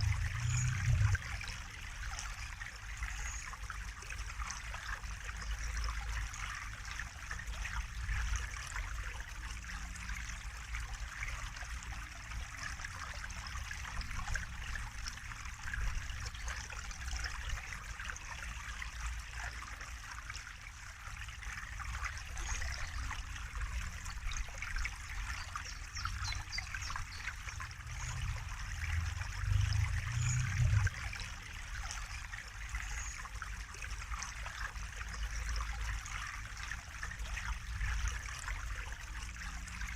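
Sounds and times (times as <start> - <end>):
low rumble: 0.0 - 1.4, 27.5 - 31.1
water trickling and splashing: 0.0 - 39.9.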